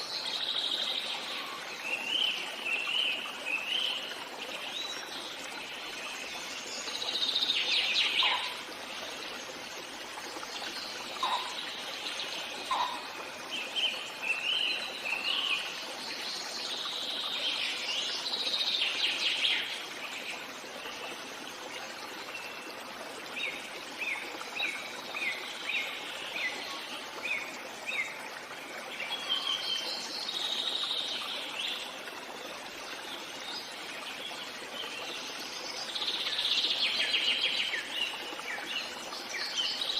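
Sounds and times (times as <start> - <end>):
birds singing and chirping: 6.8 - 8.6, 11.0 - 15.7.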